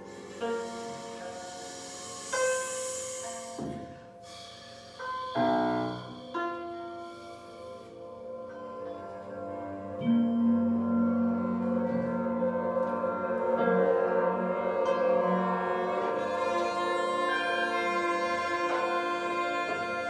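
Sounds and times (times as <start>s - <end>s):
held chords: 5.4s - 20.0s.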